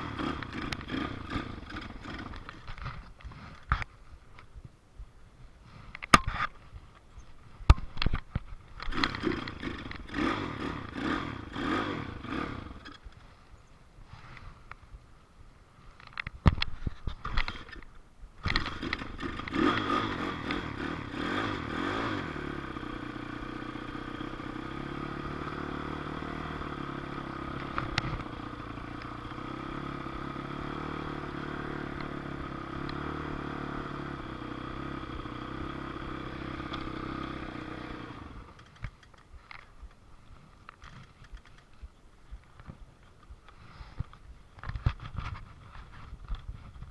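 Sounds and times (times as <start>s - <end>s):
dirt bike engine revving and idling: 0.0s - 3.0s, 8.8s - 13.2s, 18.4s - 39.9s.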